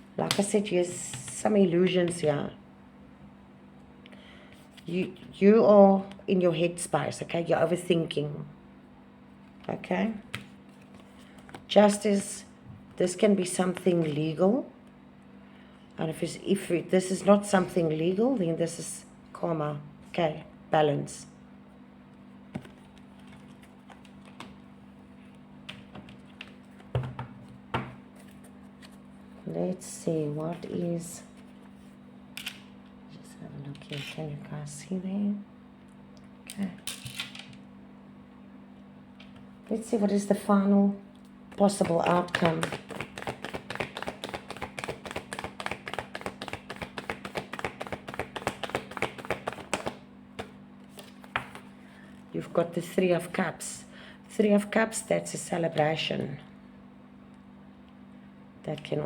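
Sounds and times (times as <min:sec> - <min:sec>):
cards clicking on a table: 0:42.0 - 0:51.6.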